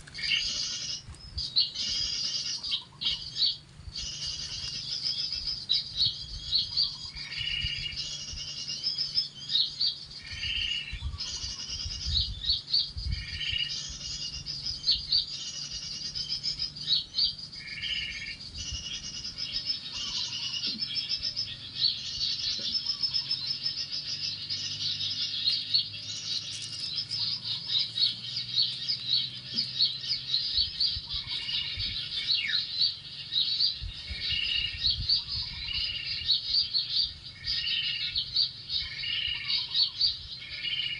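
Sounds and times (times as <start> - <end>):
lower bird call: 0.0 - 40.9
songbirds chirping: 0.0 - 40.9.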